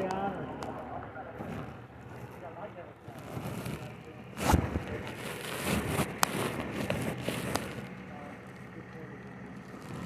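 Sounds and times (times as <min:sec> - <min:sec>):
steady low hum: 0:00.0 - 0:10.0
rustling handling noise: 0:03.1 - 0:08.6.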